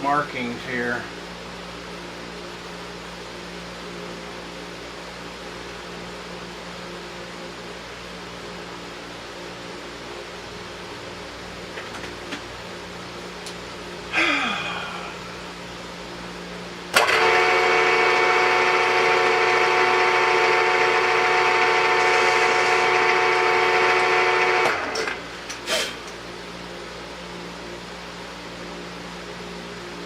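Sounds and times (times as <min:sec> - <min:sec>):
short burst falling in pitch: 0:17.0 - 0:25.0
milling spindle whining: 0:17.0 - 0:25.6.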